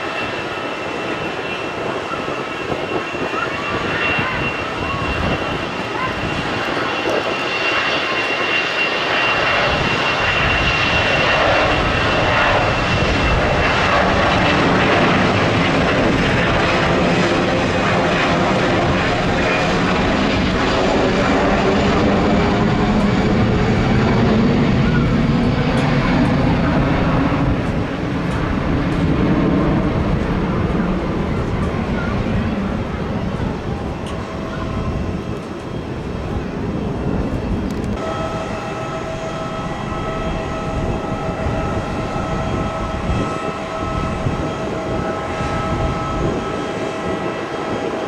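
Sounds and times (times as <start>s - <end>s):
jet engines roaring: 0.0s - 48.0s
thin high whine: 38.0s - 47.6s.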